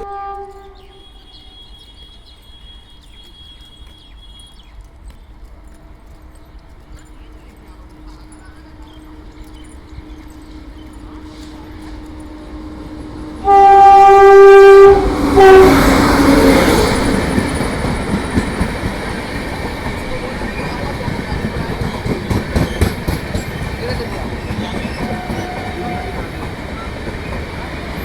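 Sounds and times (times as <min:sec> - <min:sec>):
train horn blasts: 0:00.0 - 0:02.0, 0:10.0 - 0:17.2, 0:24.8 - 0:26.9
train rumble and wheel clatter: 0:00.0 - 0:28.0.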